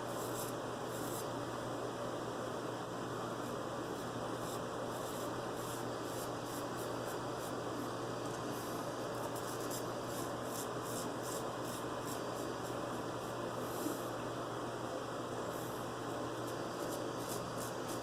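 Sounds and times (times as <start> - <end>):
razor scraping stubble: 16.4 - 18.0.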